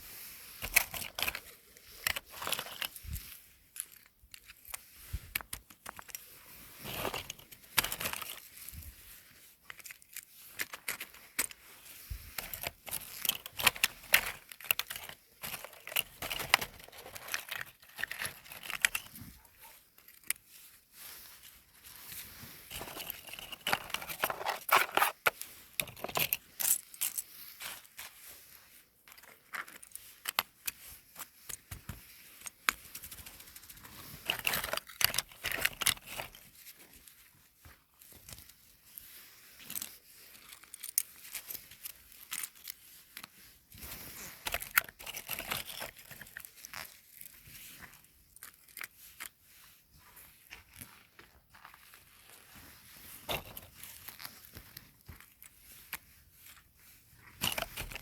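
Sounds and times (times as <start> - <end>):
crinkling and crackling handling: 0.0 - 58.0.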